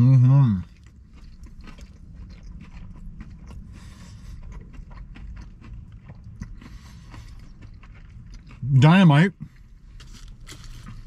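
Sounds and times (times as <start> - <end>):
person chewing crispy food: 0.0 - 11.0.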